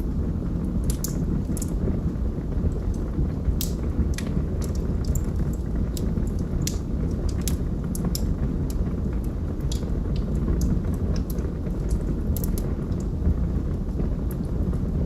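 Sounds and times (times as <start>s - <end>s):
fire pops and snaps: 0.0s - 15.0s
low rumble of burning: 0.0s - 15.0s.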